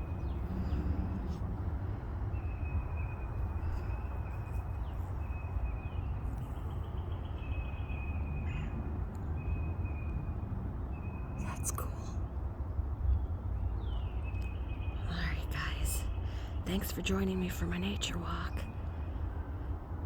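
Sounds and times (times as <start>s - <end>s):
steady low rumble: 0.0s - 7.8s.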